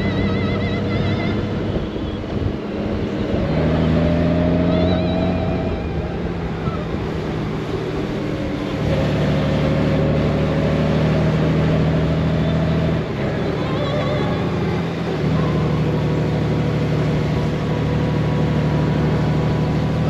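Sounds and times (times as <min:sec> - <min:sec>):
wind rushing over microphone: 0:00.0 - 0:12.2.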